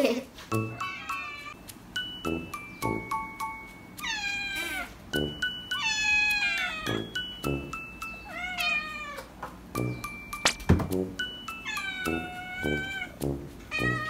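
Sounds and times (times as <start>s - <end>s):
background music: 0.5s - 4.2s, 5.0s - 8.4s, 9.8s - 14.0s
kitten meowing: 4.0s - 4.9s, 5.8s - 7.0s, 8.3s - 9.3s.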